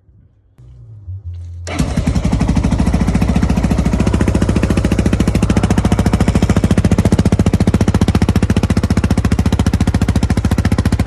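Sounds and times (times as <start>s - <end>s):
quad bike engine running: 0.6s - 11.0s.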